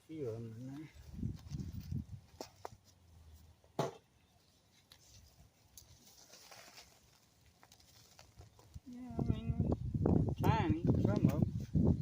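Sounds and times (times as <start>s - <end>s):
digging through loose soil: 0.6s - 3.6s, 4.4s - 10.3s.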